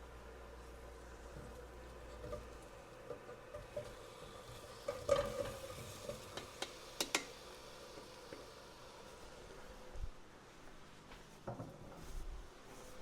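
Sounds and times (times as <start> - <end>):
scallions sizzling in oil: 1.2 - 9.8
utensil clicking and scraping pot: 4.8 - 7.4.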